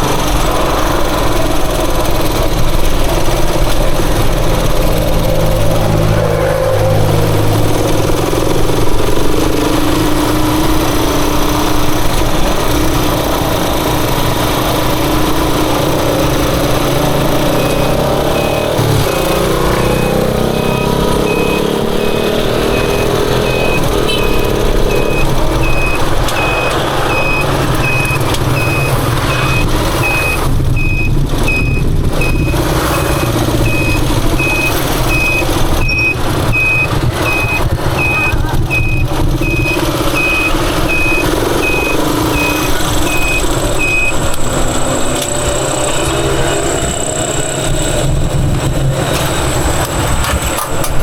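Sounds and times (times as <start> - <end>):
motorcycle engine running: 0.0 - 51.0
short high-pitched beeps: 17.2 - 44.4.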